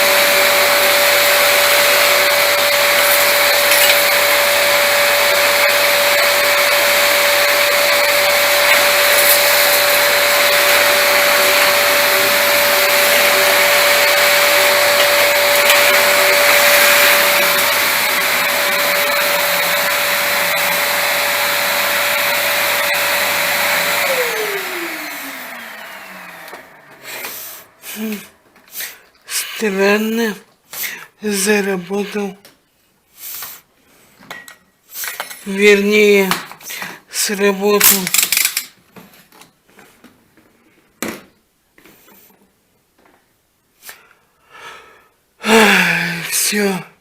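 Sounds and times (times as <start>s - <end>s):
vacuum cleaner running: 0.0s - 29.8s.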